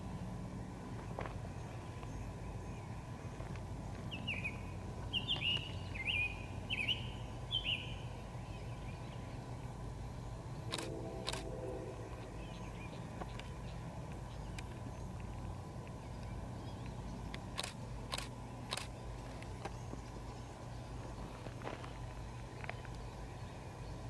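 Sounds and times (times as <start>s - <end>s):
distant diesel locomotive rumble: 0.0s - 24.0s
songbird chirping: 1.2s - 24.0s
sharp clicks: 10.7s - 11.5s, 16.8s - 19.0s.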